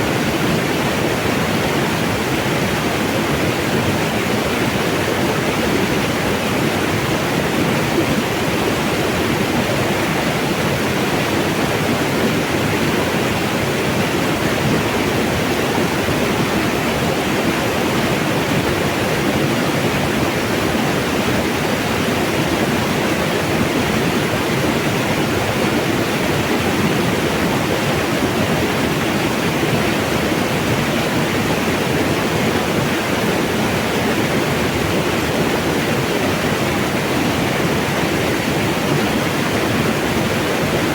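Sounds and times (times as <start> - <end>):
mountain water rushing: 0.0 - 40.9.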